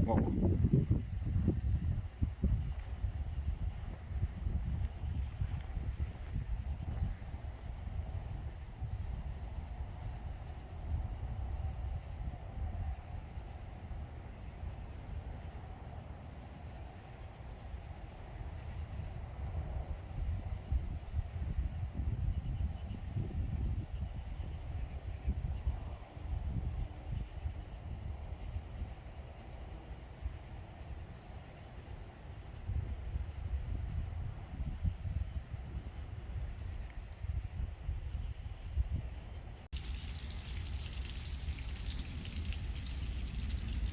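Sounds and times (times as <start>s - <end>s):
insects trilling: 0.0s - 11.2s, 39.3s - 43.9s
low uneven rumble: 39.7s - 43.9s.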